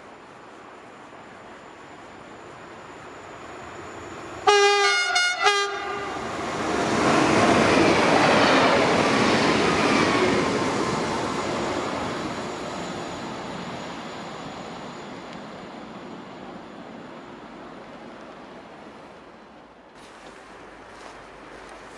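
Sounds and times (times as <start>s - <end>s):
train passing on rails: 0.0s - 21.9s
train horn: 4.4s - 6.4s.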